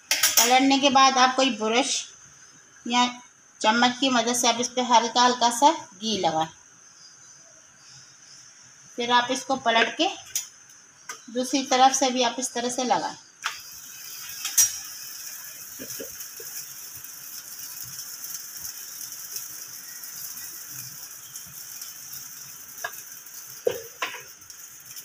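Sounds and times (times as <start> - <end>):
flatbread sizzling in pan: 0.0 - 1.5, 2.3 - 25.0
spatula tapping pan: 22.8 - 24.3.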